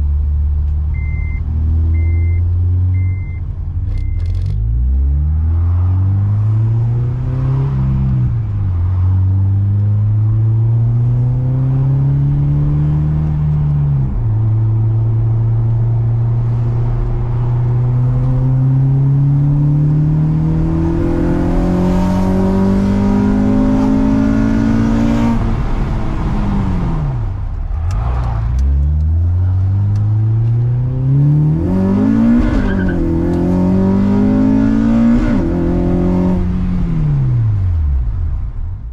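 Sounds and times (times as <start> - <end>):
car engine accelerating hard: 3.9 - 38.4.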